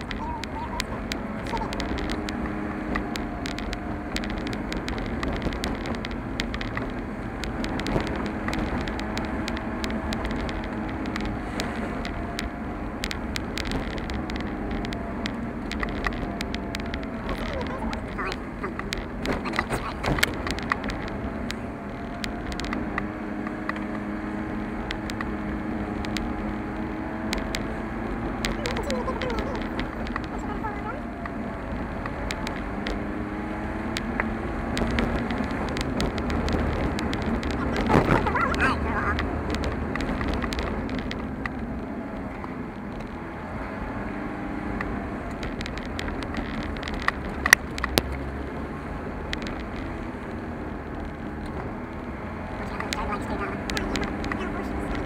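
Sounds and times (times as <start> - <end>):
car engine hum and road rumble: 0.0 - 55.0
sharp clicks and ticks: 0.0 - 55.0.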